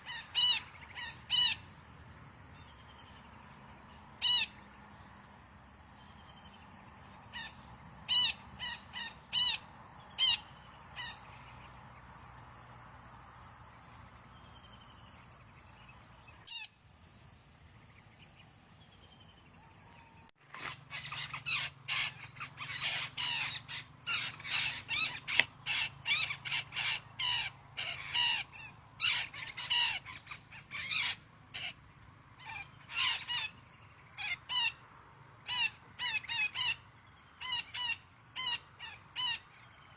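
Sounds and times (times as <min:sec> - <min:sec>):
parakeets squawking: 0:20.6 - 0:31.7.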